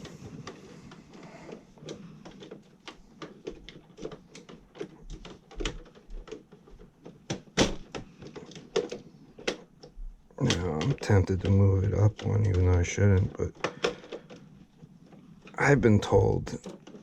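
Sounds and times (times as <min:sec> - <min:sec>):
tools clicking on circuit breakers: 0:02.3 - 0:14.4.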